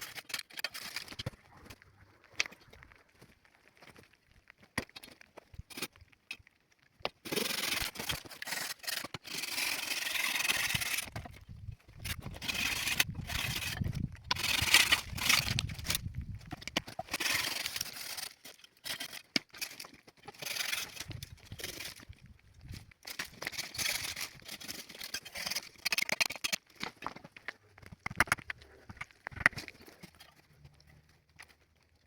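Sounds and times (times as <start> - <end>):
rough scraping and rubbing: 0.0 - 1.6, 7.2 - 22.2, 22.8 - 30.8.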